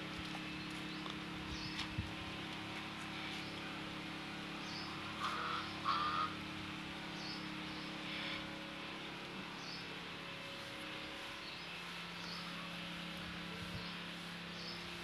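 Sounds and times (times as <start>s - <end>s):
steady low hum: 0.0s - 15.0s
louder bird calls: 4.6s - 6.4s.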